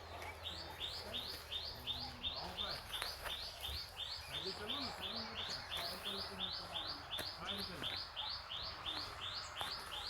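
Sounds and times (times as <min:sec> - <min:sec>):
bird chirping: 0:00.1 - 0:10.0.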